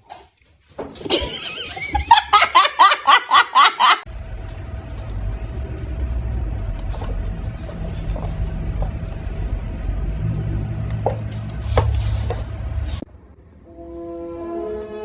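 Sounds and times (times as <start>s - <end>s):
person laughing: 1.1s - 4.1s
faint constant hum: 4.1s - 13.7s
steady low rumble: 4.1s - 13.7s.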